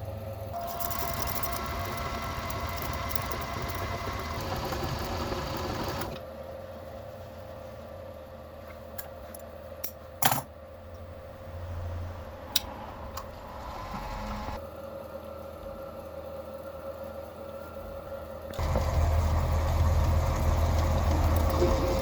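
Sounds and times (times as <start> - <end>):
small electric motor running: 0.6 - 6.2.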